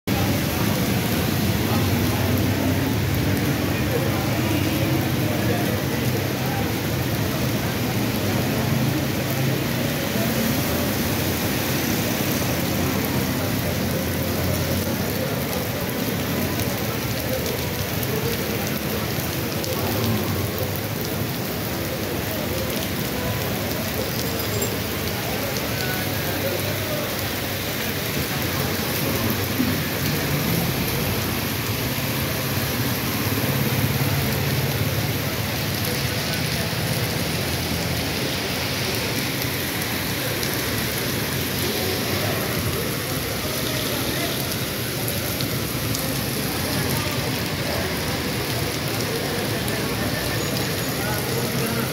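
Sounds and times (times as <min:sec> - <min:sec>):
heavy rain on a flooded street: 0:00.0 - 0:51.9.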